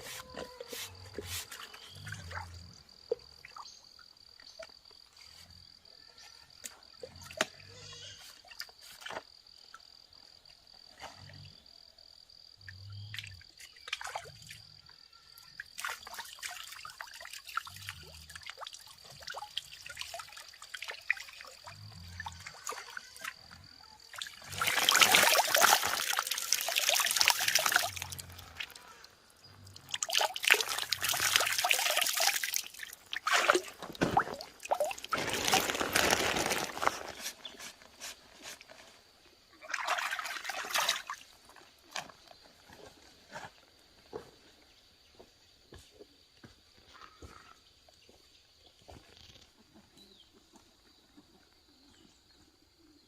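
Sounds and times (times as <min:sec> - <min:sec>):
water trickling and splashing: 0:13.2 - 0:14.6, 0:15.6 - 0:38.2, 0:39.6 - 0:42.4
water pouring and splashing: 0:15.6 - 0:23.4, 0:24.0 - 0:28.8, 0:29.5 - 0:38.7, 0:39.6 - 0:41.6.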